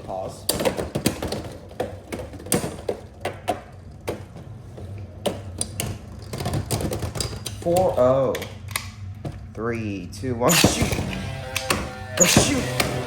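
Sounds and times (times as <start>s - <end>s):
plastic clicks and clacks: 0.4s - 9.4s.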